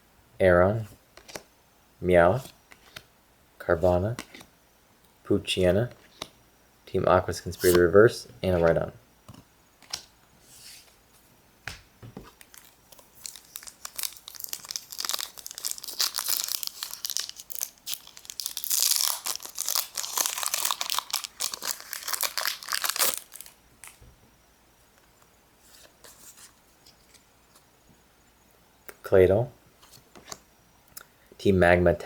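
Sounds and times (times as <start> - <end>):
foil wrapper crinkling: 12.3 - 24.0.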